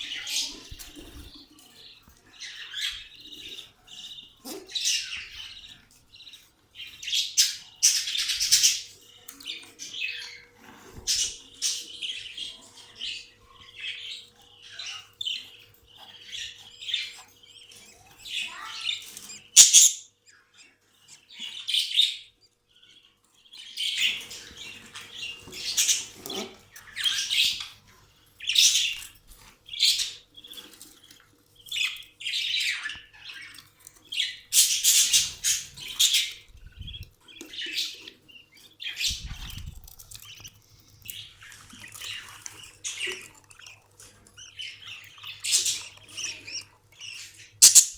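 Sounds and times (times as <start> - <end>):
budgerigars chattering and chirping: 0.0 - 47.9
sharp click: 47.6 - 47.9.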